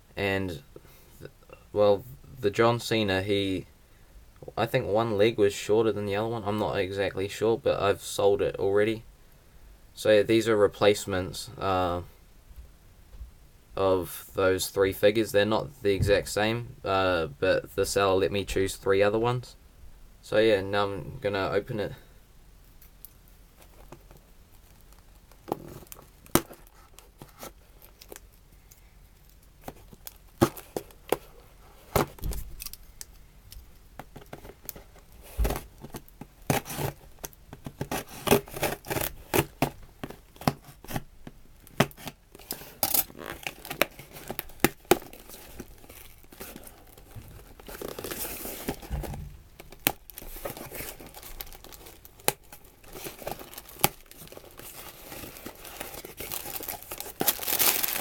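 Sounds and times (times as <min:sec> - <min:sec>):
packaging tearing and crinkling: 0:34.2 - 0:41.0, 0:41.7 - 0:58.0.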